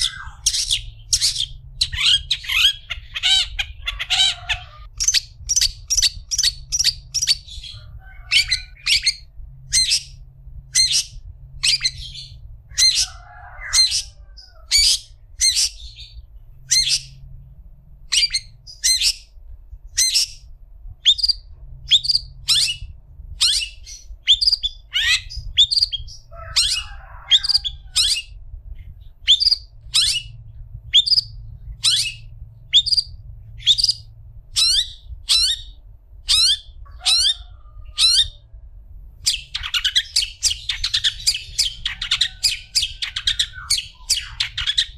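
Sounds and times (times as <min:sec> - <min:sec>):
bird giving harsh calls: 0:00.0 - 0:10.2
bird scratchy chatter: 0:00.0 - 0:10.2, 0:39.3 - 0:44.9
faint low hum: 0:00.0 - 0:44.9.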